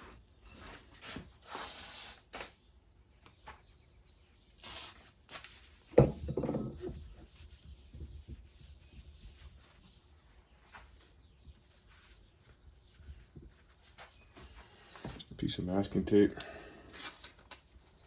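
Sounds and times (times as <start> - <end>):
masking tape pulled off roll: 1.0 - 2.6, 4.6 - 5.1.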